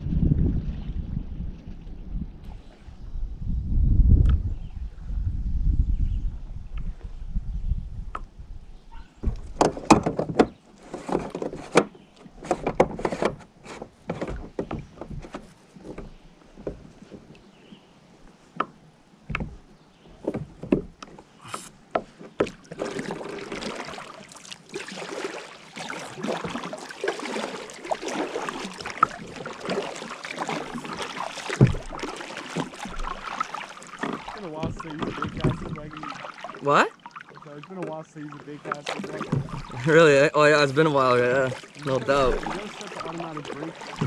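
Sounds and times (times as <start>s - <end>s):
paddle knocking and splashing: 8.9s - 44.0s
splashing water: 19.2s - 44.0s.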